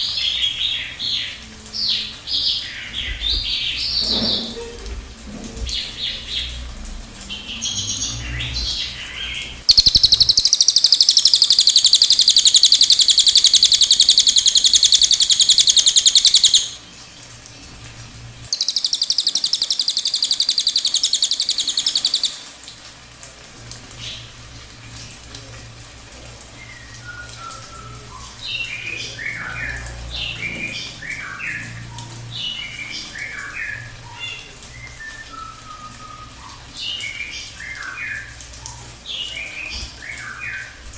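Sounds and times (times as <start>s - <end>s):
bird chirping notes: 7.2s - 17.6s, 18.4s - 22.5s.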